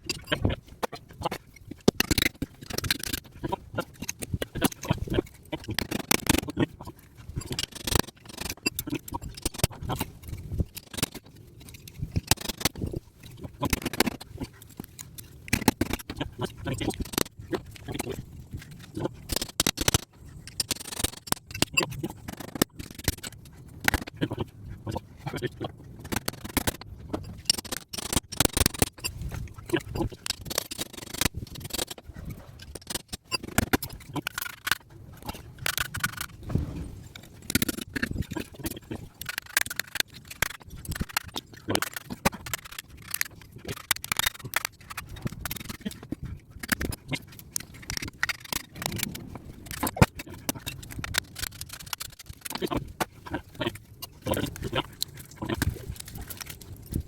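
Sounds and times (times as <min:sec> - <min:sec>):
hand tools scraping and clicking on metal: 0:00.0 - 0:57.0.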